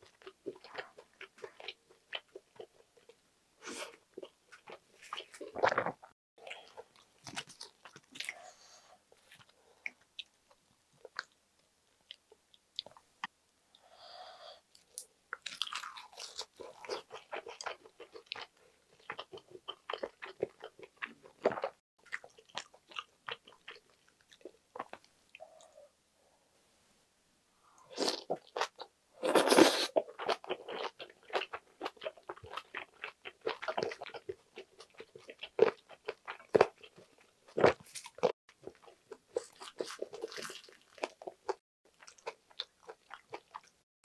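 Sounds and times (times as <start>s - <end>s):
crunchy chewing: 3.8s - 8.6s, 14.8s - 25.4s, 28.0s - 43.7s.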